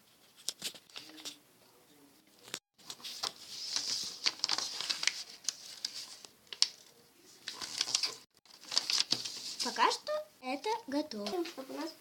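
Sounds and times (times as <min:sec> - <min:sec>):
paper rustling and crinkling: 0:00.0 - 0:01.4, 0:02.4 - 0:10.0.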